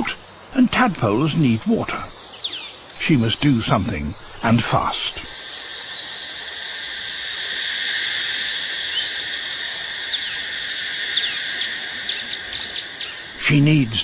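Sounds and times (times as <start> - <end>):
high insect drone: 0.0 - 14.0
short chirping calls: 1.9 - 5.2.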